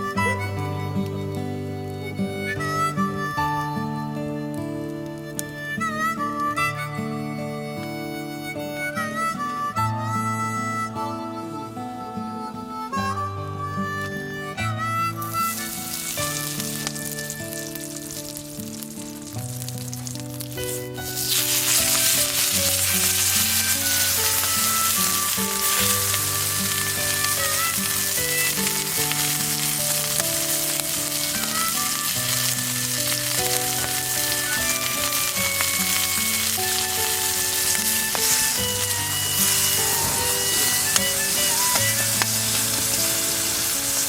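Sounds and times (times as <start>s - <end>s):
background music: 0.0s - 44.0s
food sizzling over fire: 15.1s - 44.0s.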